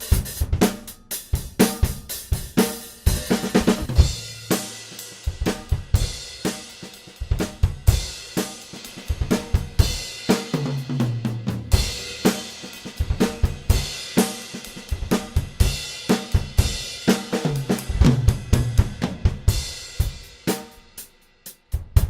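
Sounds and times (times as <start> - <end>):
drum kit groove: 0.0 - 22.0
tom drum fill: 1.4 - 4.5, 17.4 - 20.2.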